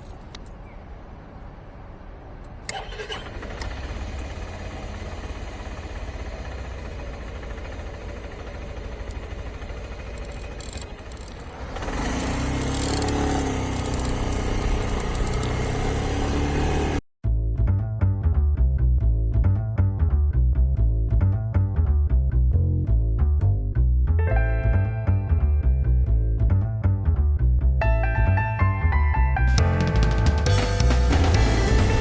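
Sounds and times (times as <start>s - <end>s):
scooter engine rumbling: 0.0s - 17.0s, 29.6s - 32.0s.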